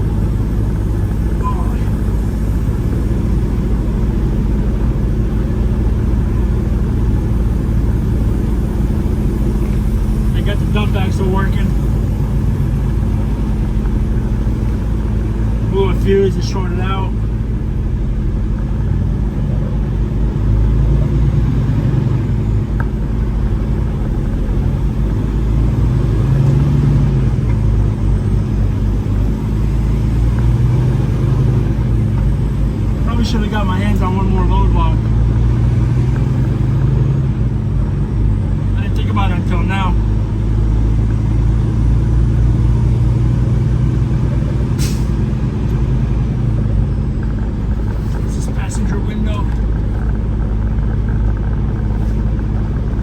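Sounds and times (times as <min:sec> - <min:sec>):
truck diesel engine droning: 0:00.0 - 0:53.0
short hiss: 0:44.8 - 0:45.2.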